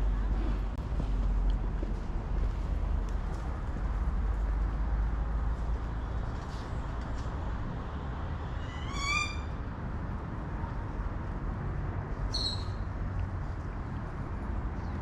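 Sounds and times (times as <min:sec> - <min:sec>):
outdoor background noise: 0:00.0 - 0:15.0
rising whistled bird call: 0:08.6 - 0:09.6, 0:12.3 - 0:12.8
high bird chirp: 0:12.3 - 0:12.9.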